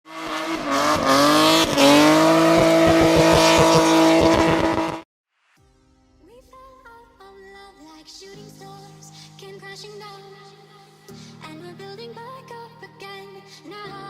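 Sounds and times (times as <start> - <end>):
rally car engine at high revs: 0.1 - 5.0
quiet music: 5.6 - 14.0.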